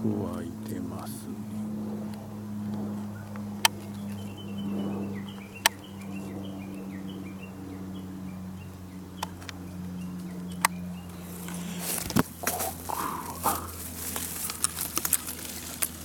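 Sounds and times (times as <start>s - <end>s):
steady low hum: 0.0s - 16.0s
bird chirping: 3.1s - 16.0s
sharp clicks: 9.2s - 9.6s.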